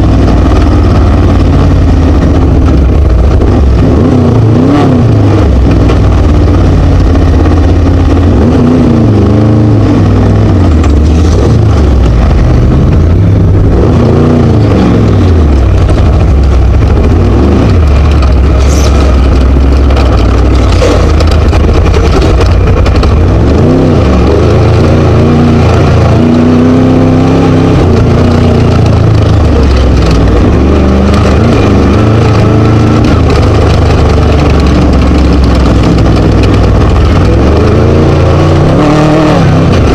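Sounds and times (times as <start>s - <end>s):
race buggy engine revving loudly: 0.0s - 39.9s
chassis knocks: 14.6s - 23.8s.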